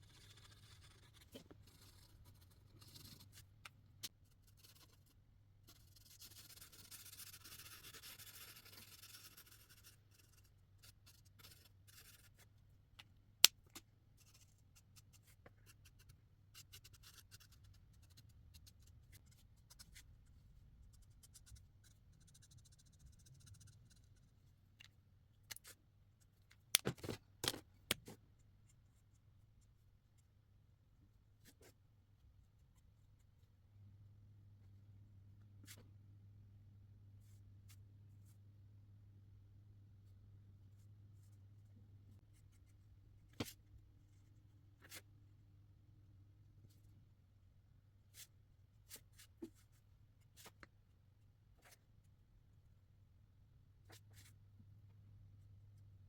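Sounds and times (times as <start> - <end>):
marker scratching on paper: 0.0 - 3.5, 5.7 - 12.4.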